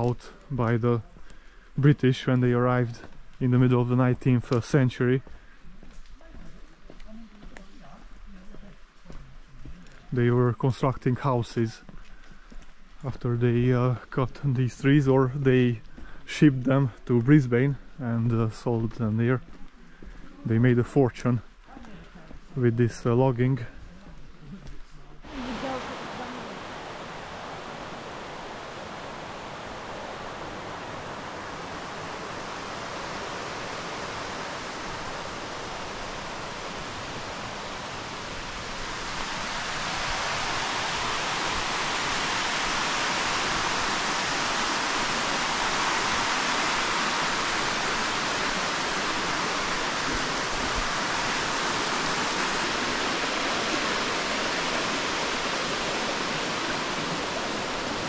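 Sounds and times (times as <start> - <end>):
running water rushing: 0.0 - 0.8, 25.2 - 58.0.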